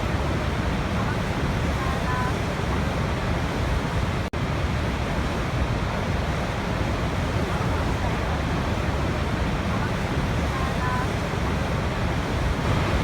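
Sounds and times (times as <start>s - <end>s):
waterfall rushing: 10.7s - 13.0s.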